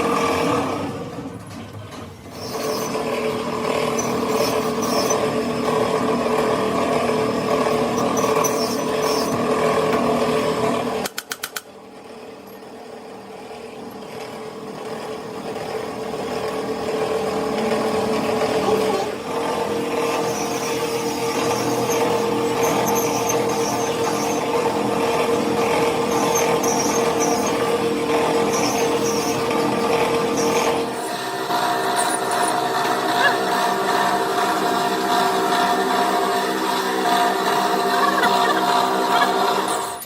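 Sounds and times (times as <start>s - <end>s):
electric motor humming: 2.3s - 11.0s, 14.5s - 40.0s
quick clicks: 11.0s - 11.7s.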